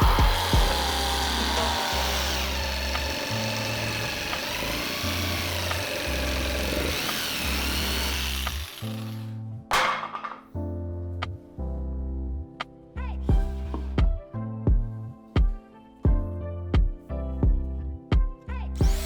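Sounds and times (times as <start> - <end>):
background music with bass line: 0.0 - 4.6, 10.6 - 19.0
power tool running: 0.0 - 9.4, 18.8 - 19.0.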